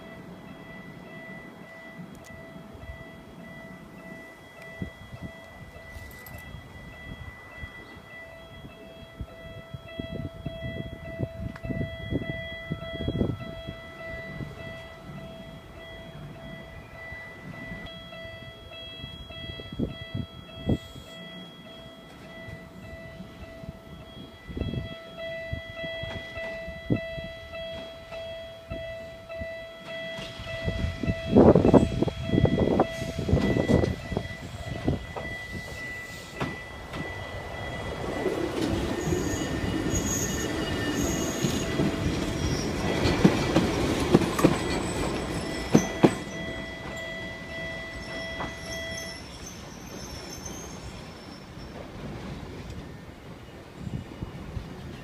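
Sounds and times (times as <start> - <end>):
level crossing alarm ringing: 0.0 - 51.6
electric train passing: 0.0 - 55.0
wheels clicking over rail joints: 29.8 - 53.4.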